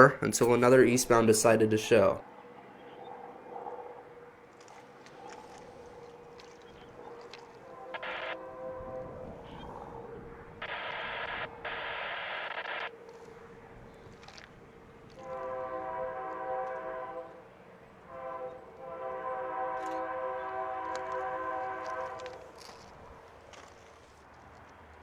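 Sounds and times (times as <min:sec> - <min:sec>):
locomotive air horn blasts: 0:07.6 - 0:11.4, 0:15.2 - 0:17.4, 0:18.0 - 0:22.5.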